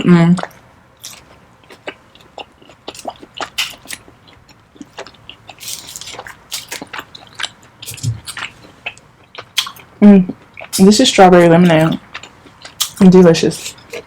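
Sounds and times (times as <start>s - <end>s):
mouth chewing wet clicks: 0.4s - 10.9s.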